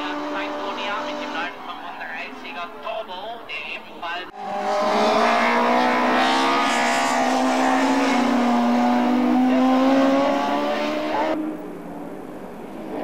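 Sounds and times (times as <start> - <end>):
race car engine at high revs: 0.0 - 1.7, 4.3 - 13.0.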